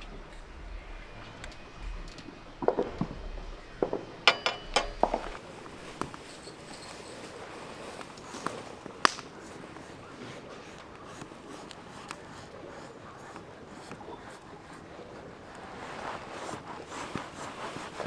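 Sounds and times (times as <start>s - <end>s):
campfire crackling: 0.0s - 6.4s.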